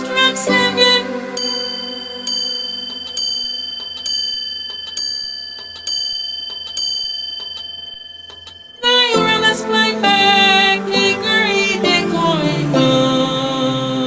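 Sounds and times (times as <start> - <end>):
faint clock ticking: 0.0 - 10.4
clock bell striking: 0.0 - 13.2.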